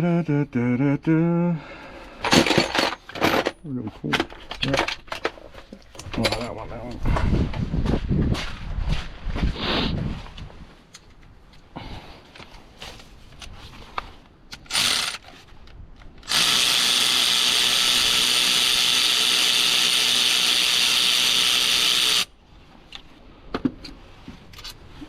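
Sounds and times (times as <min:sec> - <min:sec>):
cordless power tool running: 0:14.7 - 0:15.2, 0:16.2 - 0:22.3.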